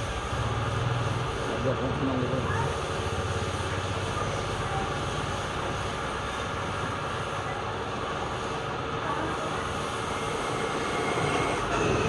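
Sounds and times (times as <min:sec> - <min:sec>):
mechanical running noise: 0:09.1 - 0:12.0.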